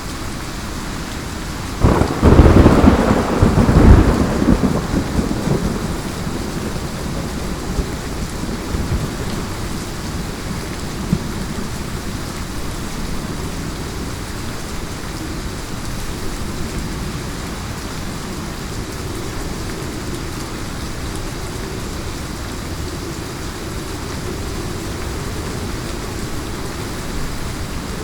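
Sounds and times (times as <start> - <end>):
heavy rain hissing: 0.0 - 28.0
sharp knocks of raindrops: 1.8 - 11.9
deep low thunder rumble: 1.8 - 12.0.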